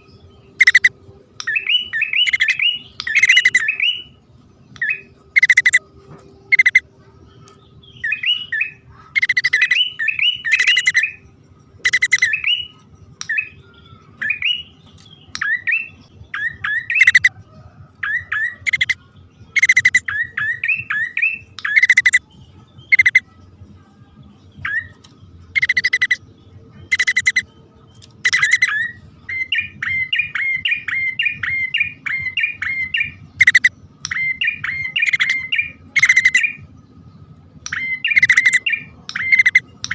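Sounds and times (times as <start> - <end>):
bird harsh buzzy calls: 0.0 - 4.2, 4.8 - 5.8, 6.4 - 6.9, 7.5 - 17.4, 18.0 - 22.2, 22.9 - 23.3, 24.6 - 26.2, 26.8 - 27.5, 28.2 - 36.6, 37.7 - 39.9
bird rising chirps: 0.0 - 23.3, 24.4 - 37.0, 37.6 - 39.9.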